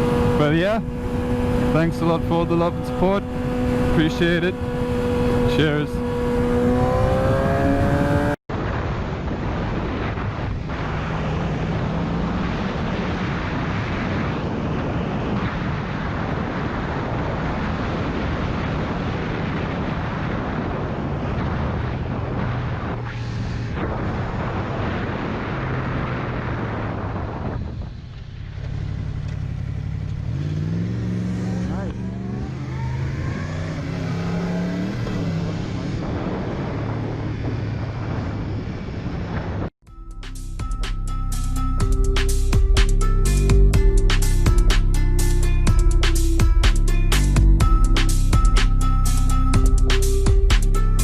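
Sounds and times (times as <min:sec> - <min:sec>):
wind rush: 0:00.0 - 0:39.8
motorcycle engine drone: 0:00.0 - 0:51.0.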